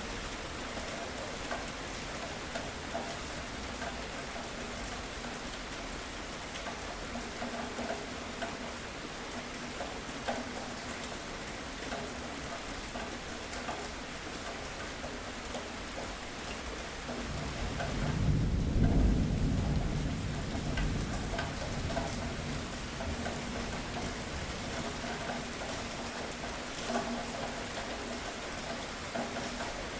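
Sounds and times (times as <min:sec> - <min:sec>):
raindrops pattering: 0:00.0 - 0:29.9
steady rainfall: 0:00.0 - 0:29.9
low rumble of thunder: 0:17.1 - 0:25.5.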